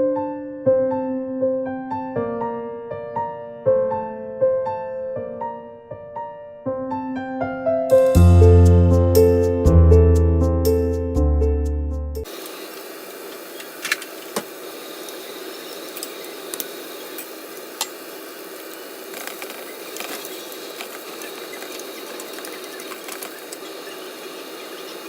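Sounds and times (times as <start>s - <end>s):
steady hiss: 12.3s - 25.0s.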